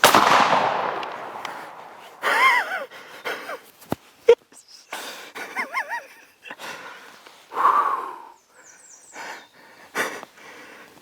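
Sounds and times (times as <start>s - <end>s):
man breathing hard: 9.1s - 11.0s.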